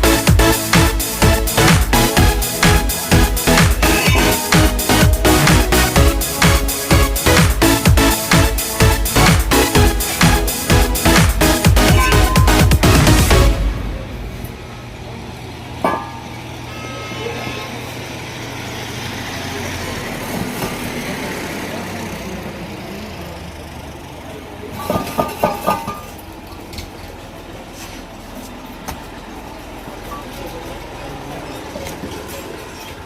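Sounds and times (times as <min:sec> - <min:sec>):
vehicle engine running: 0:00.0 - 0:25.0
short high tones: 0:11.8 - 0:12.9, 0:16.6 - 0:18.1.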